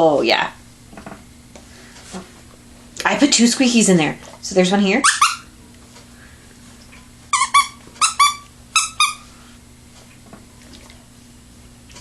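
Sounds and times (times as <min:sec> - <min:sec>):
dog toy squeaking: 0:05.0 - 0:05.5, 0:07.3 - 0:09.3.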